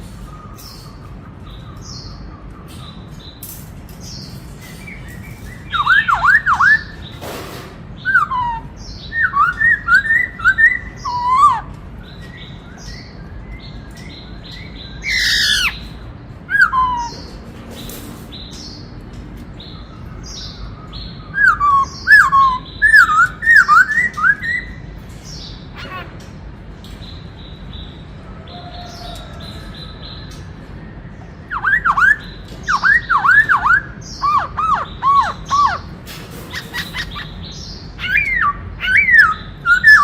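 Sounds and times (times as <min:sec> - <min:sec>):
bird whistling song: 0:04.0 - 0:07.2, 0:08.0 - 0:17.4, 0:19.6 - 0:25.9, 0:28.6 - 0:40.0.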